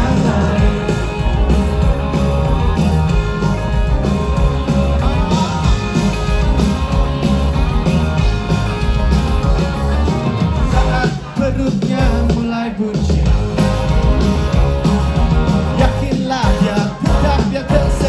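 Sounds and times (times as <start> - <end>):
person singing: 0.0 - 1.6, 15.8 - 18.0
electric guitar: 0.0 - 18.0
live rock band playing: 0.0 - 18.0.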